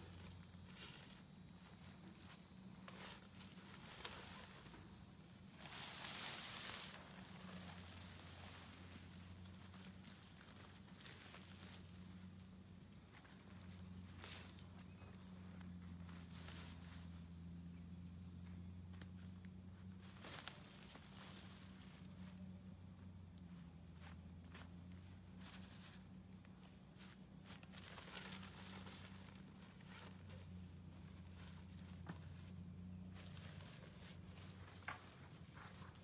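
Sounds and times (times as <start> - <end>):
faint low hum: 0.0 - 36.0
small clicks and crackles: 26.4 - 32.5.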